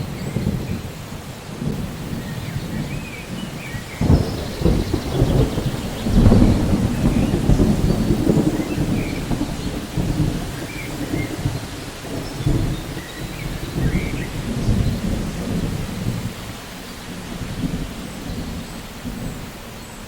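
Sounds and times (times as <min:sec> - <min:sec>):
rolling thunder: 0:00.0 - 0:19.6
steady rain: 0:00.0 - 0:20.0.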